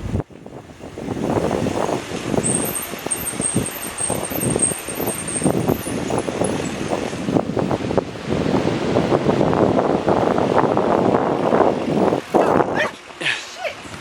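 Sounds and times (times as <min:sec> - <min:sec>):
wind buffeting microphone: 0:00.0 - 0:13.1
bike rattling over bumps: 0:01.2 - 0:07.6
bicycle tyres crunching: 0:02.0 - 0:07.1
high-pitched pulsing chirp: 0:02.4 - 0:06.8.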